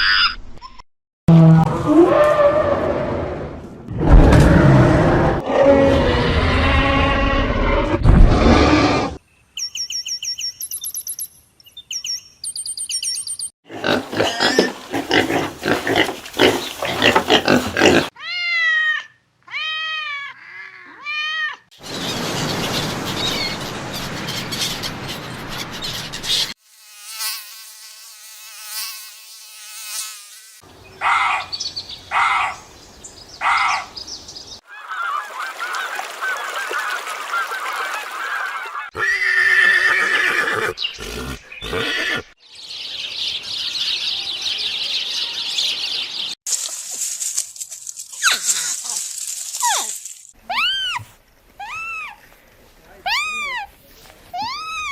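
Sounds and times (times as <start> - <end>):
rising and falling animal calls: 1.4 - 9.2, 34.6 - 42.4, 49.6 - 52.2, 53.0 - 53.7, 54.4 - 54.9.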